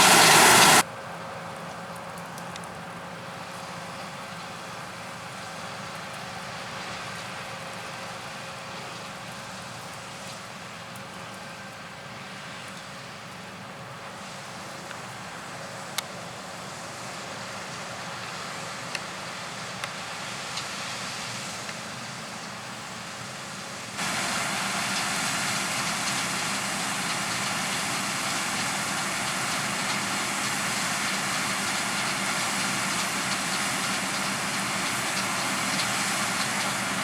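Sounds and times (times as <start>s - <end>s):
distant harvest machinery drone: 0.0s - 0.8s, 14.2s - 37.0s
noisy hiss: 0.0s - 0.8s, 15.3s - 37.0s.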